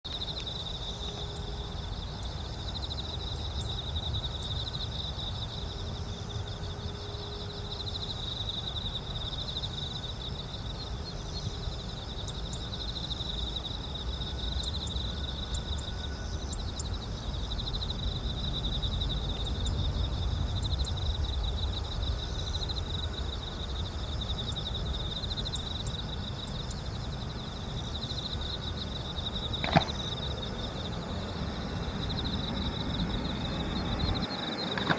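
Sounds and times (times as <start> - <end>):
insects trilling: 0.1 - 34.9.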